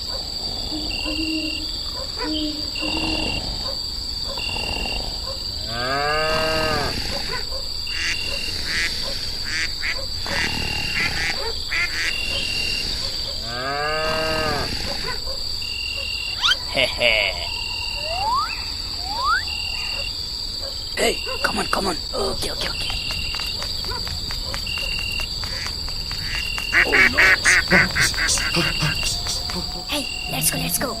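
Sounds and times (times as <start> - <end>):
high insect-like drone: 0.0 - 3.6, 15.7 - 20.1, 22.8 - 31.0
rising and falling animal calls: 0.5 - 3.6, 16.3 - 20.1, 22.8 - 31.0
short repeating animal call: 26.7 - 31.0.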